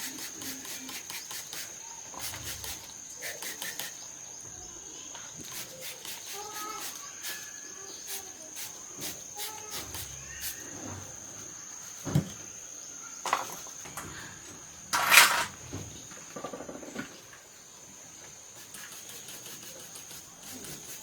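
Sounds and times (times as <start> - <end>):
brief rattle: 14.9 - 15.8.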